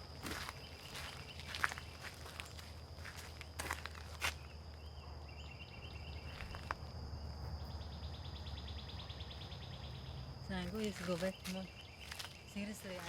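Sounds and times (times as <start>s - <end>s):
footsteps on trail: 0.0s - 4.8s, 6.2s - 6.9s, 10.6s - 13.0s
insect fast pulsing trill: 0.0s - 13.0s
insects droning: 0.0s - 13.0s.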